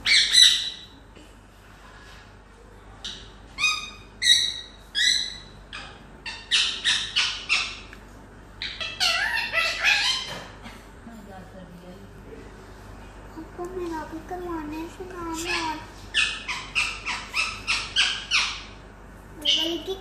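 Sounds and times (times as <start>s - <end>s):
parakeet squawking: 0.0s - 1.0s, 3.0s - 7.9s, 8.6s - 10.6s, 15.2s - 18.8s, 19.4s - 20.0s.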